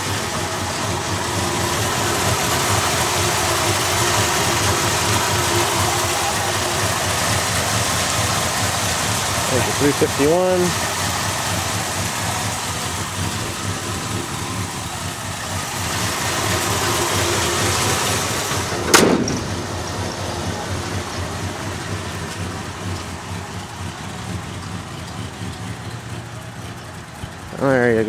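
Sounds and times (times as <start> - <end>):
engine idling: 0.0 - 28.0
sharp loud bang: 18.7 - 19.7.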